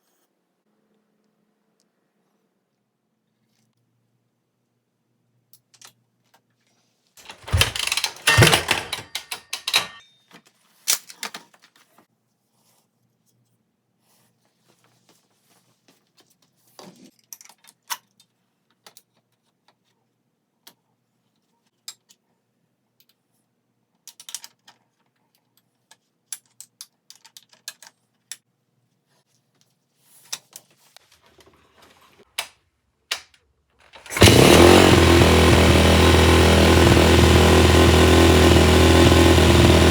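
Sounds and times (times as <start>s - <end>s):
metal tools clattering: 7.2s - 10.0s
motorcycle engine running loudly: 7.2s - 10.0s, 34.1s - 39.9s.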